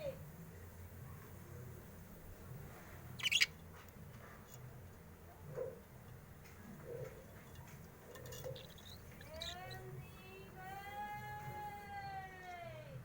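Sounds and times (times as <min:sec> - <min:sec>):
bird peeping softly: 0:03.1 - 0:03.6, 0:08.0 - 0:10.3
bird chirping: 0:03.2 - 0:03.6, 0:08.1 - 0:10.3.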